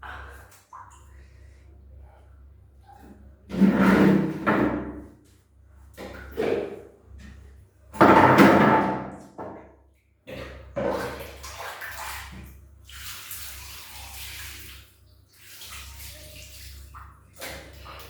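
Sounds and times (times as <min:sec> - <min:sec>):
water running and splashing: 0:10.8 - 0:18.0.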